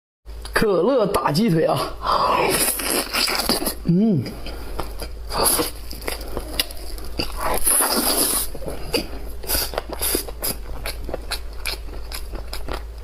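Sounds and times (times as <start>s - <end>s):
slurping: 2.2s - 10.6s
wet chewing and mouth smacks: 2.7s - 13.0s.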